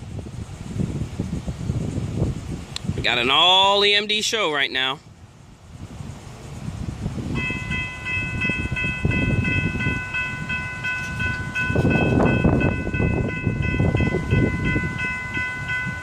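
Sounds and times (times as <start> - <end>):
crossing warning bell ringing: 7.3 - 16.0.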